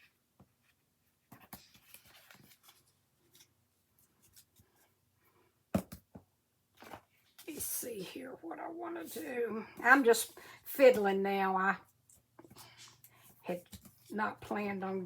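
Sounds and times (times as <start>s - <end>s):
paper rustling: 1.3s - 4.8s, 12.1s - 14.5s.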